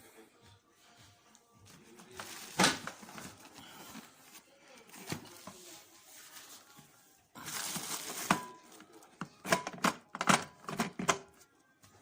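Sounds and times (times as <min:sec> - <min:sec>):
plastic rustle: 0:02.0 - 0:09.1
clicks and knocks of hard parts: 0:09.2 - 0:11.3.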